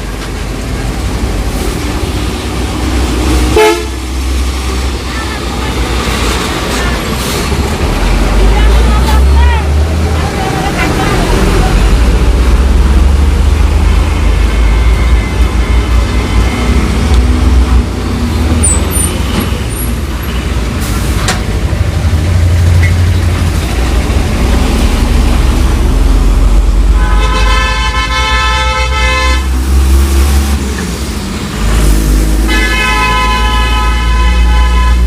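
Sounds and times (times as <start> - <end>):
diesel truck engine rumbling: 0.0 - 35.0
vehicle horn blasts: 3.5 - 4.0, 27.0 - 29.5, 32.5 - 35.0.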